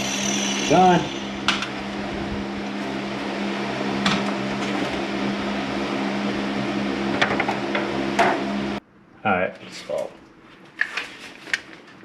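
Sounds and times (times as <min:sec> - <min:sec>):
machine humming: 0:00.0 - 0:08.8.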